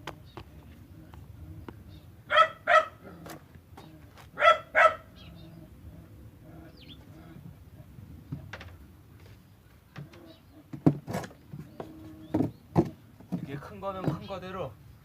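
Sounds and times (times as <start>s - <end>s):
dog barking: 2.3s - 3.2s, 4.4s - 5.2s.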